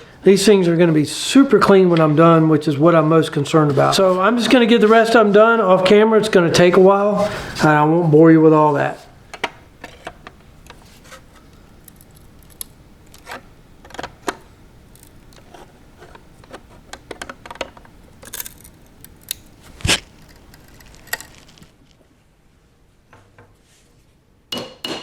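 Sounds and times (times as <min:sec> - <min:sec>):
small parts clicking and scraping: 0:09.8 - 0:14.1, 0:14.9 - 0:21.8.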